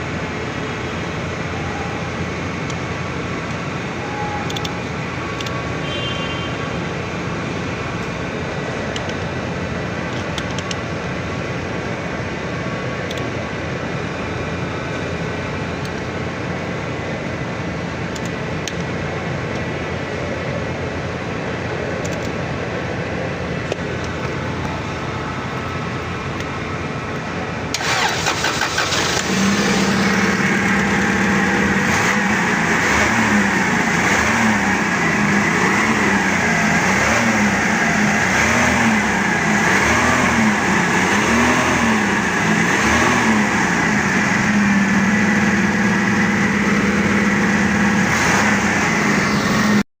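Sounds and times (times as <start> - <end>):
engine cranking: 27.7 - 32.2
engine revving and idling: 27.7 - 49.9.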